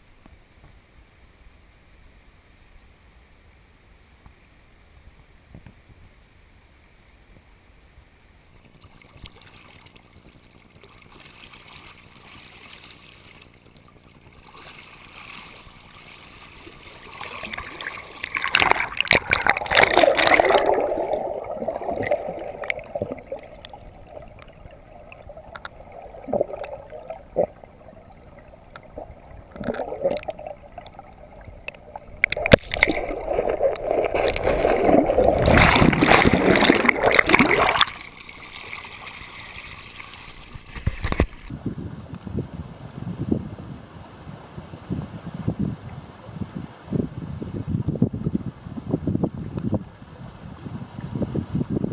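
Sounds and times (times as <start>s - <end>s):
water splashing and gurgling: 8.6s - 41.6s.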